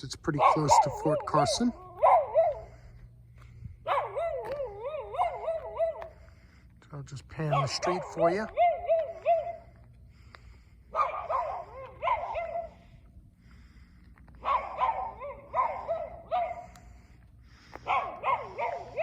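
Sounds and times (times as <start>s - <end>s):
dog barking and yelping: 0.3s - 2.9s, 3.8s - 6.3s, 7.4s - 9.8s, 10.9s - 12.9s, 14.3s - 17.1s, 17.8s - 19.0s.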